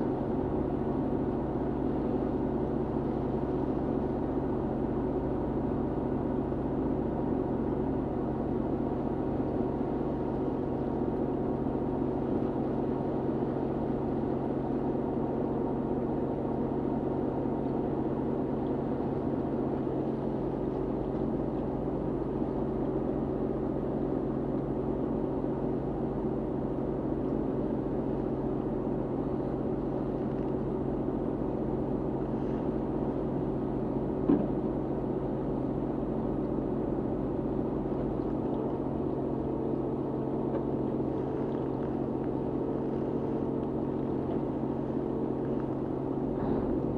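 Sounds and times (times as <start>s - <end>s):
boat engine droning: 28.0s - 46.9s
short knock: 34.3s - 34.6s.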